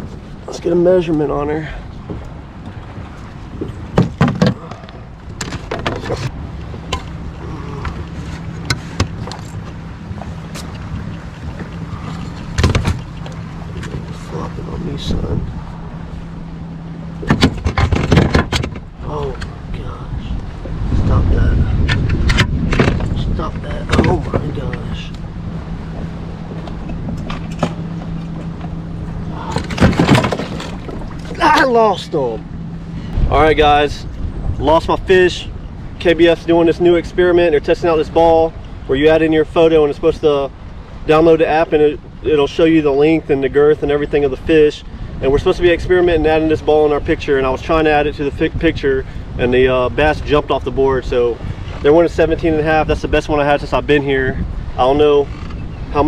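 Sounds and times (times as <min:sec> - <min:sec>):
steady low hum: 0:00.0 - 0:36.2
knocks and clatter on kayak: 0:02.0 - 0:07.2, 0:07.8 - 0:14.2, 0:17.2 - 0:19.5, 0:21.8 - 0:25.0, 0:25.9 - 0:28.8, 0:29.4 - 0:31.7
sharp knocks: 0:03.9 - 0:04.6, 0:12.5 - 0:13.3, 0:17.2 - 0:18.9.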